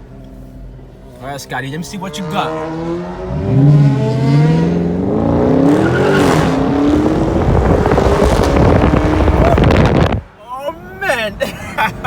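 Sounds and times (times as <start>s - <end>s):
car engine accelerating hard: 1.8s - 10.2s
loud rushing noise: 6.2s - 10.3s.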